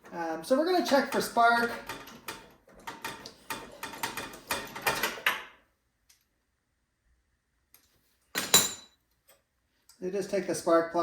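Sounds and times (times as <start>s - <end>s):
hand tools clicking and rattling: 0.8s - 5.4s.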